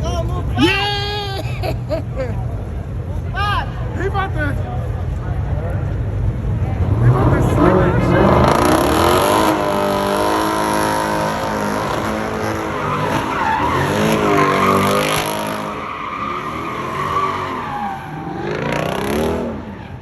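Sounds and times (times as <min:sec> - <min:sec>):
tyres skidding and squealing: 0:00.0 - 0:20.0
car engine revving: 0:04.0 - 0:20.0.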